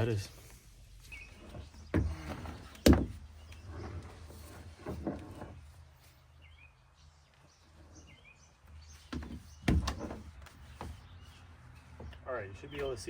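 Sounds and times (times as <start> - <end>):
bird chirping: 1.0 - 4.0, 6.2 - 13.0
handling knocks and thumps: 1.4 - 3.5, 9.0 - 13.0.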